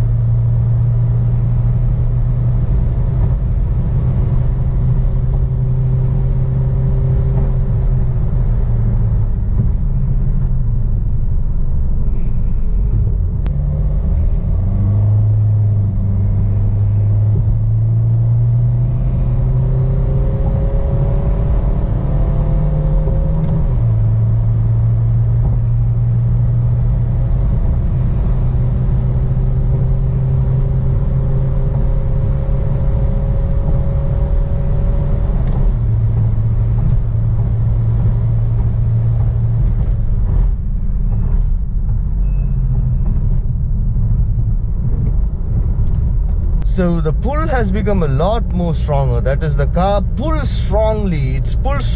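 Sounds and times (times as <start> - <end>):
steady low rumble: 0.0 - 19.7, 35.6 - 51.9
diesel car accelerating: 0.0 - 51.9.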